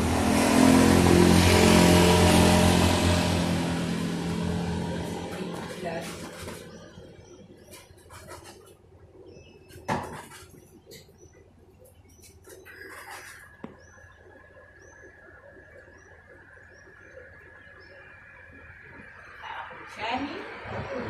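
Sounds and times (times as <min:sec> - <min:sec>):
bird chirping: 0:05.5 - 0:19.8.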